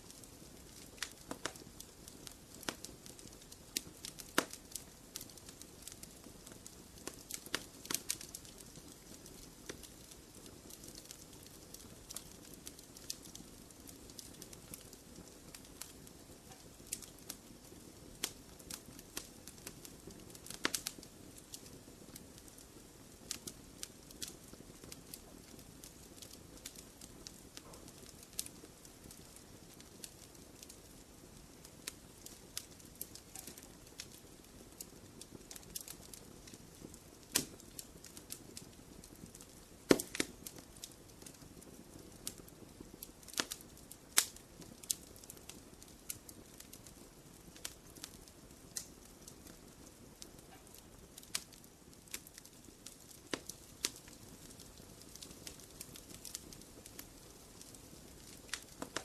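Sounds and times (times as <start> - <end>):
wood fire crackling: 0.0 - 59.0
sharp pops and snaps: 0.2 - 1.6, 4.0 - 4.6, 31.8 - 34.2, 36.8 - 38.7, 39.8 - 41.4, 43.2 - 45.4, 50.5 - 54.1, 55.0 - 59.0.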